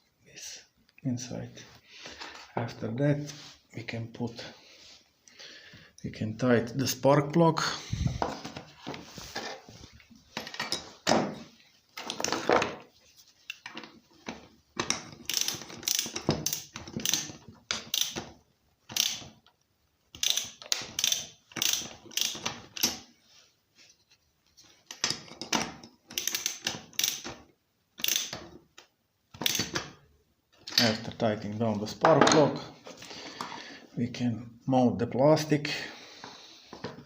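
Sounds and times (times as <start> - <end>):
ratchet clicking: 15.2 - 18.2, 18.9 - 19.3, 20.2 - 23.0, 26.2 - 27.3, 28.0 - 28.4.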